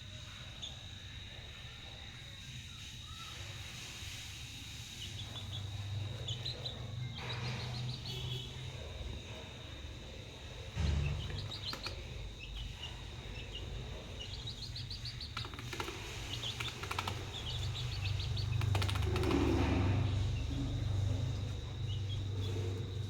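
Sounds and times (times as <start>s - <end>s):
chicks peeping: 0.3s - 23.0s
sharp clicks: 11.2s - 12.2s, 15.2s - 19.6s.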